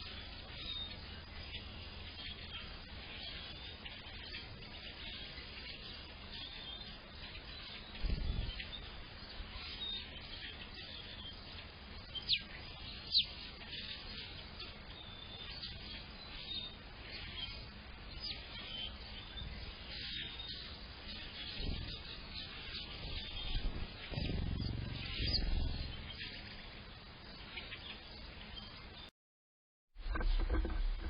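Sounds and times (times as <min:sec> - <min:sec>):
songbirds chirping and singing: 0:00.0 - 0:29.1
brief low rumble: 0:23.3 - 0:26.4
sharp high downward bird notes: 0:23.3 - 0:26.4.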